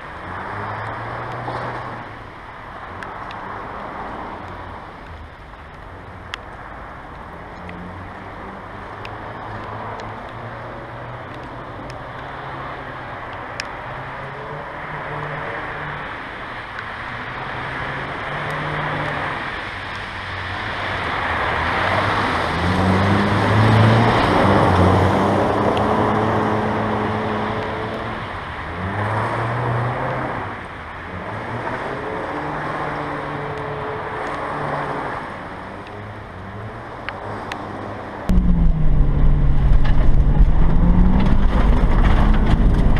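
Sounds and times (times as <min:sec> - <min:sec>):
car engine revving: 0:38.3 - 0:42.9.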